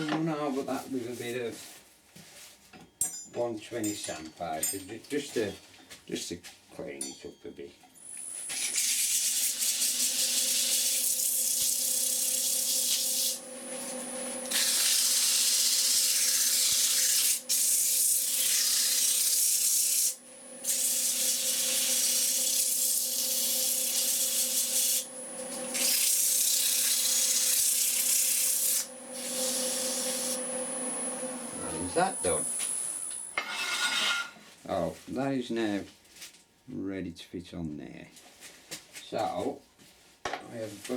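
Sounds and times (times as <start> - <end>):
lathe motor hum: 20.4 - 33.3.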